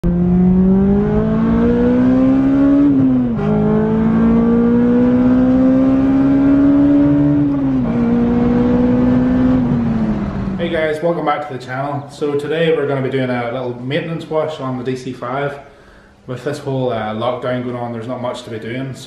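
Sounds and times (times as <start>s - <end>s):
car engine accelerating hard: 0.0s - 10.6s.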